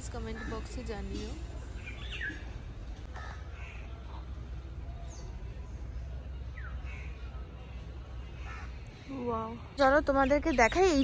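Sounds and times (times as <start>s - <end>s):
hoarse caw-like bird calls: 3.1s - 3.9s.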